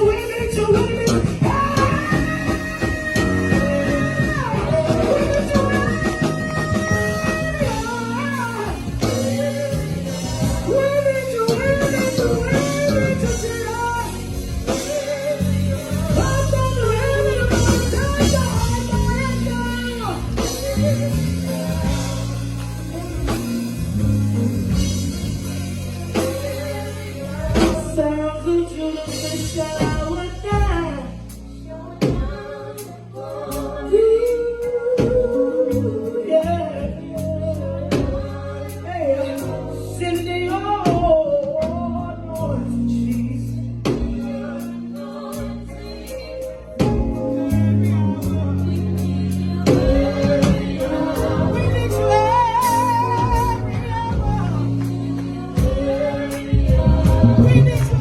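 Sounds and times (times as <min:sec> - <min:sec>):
drum kit: 0:00.0 - 0:58.0
people singing: 0:00.0 - 0:58.0.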